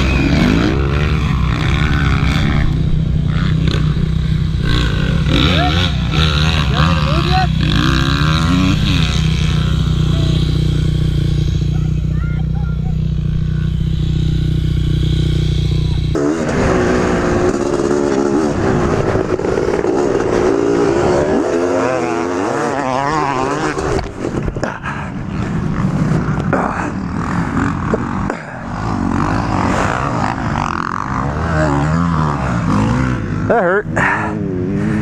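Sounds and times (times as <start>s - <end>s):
dirt bike engine revving: 0.0s - 35.0s
low engine drone: 0.0s - 35.0s.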